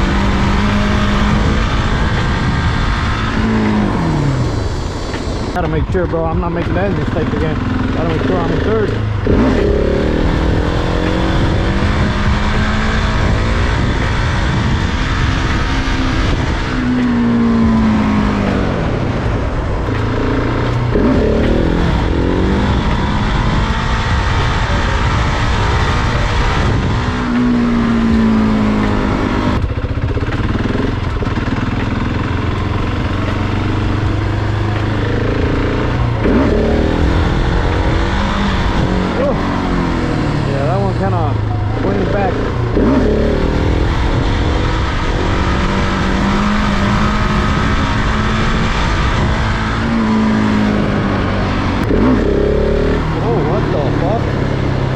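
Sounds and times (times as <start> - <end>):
low rumbling noise: 0.0 - 54.9
motorcycle engine revving: 0.0 - 54.9.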